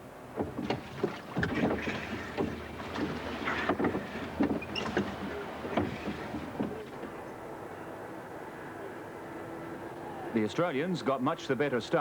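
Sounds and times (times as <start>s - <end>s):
oar splashes and knocks: 0.3s - 7.2s.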